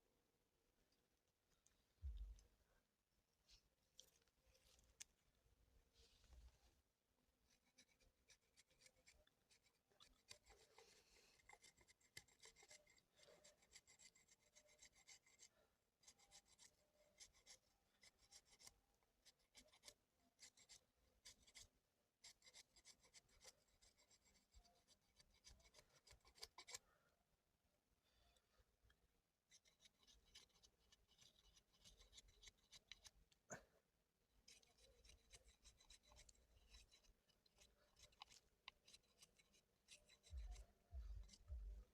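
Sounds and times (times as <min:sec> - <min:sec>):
faint scratching and rubbing: 0:05.8 - 0:26.8, 0:29.4 - 0:33.3, 0:34.4 - 0:41.9.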